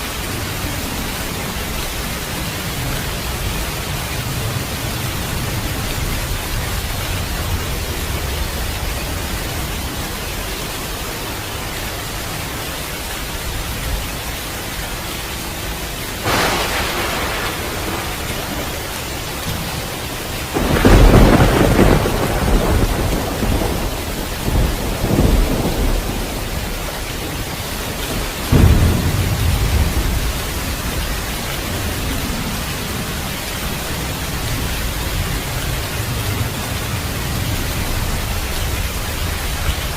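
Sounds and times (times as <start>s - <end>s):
heavy rain: 0.0s - 39.9s
thunder claps and peals: 16.2s - 32.6s.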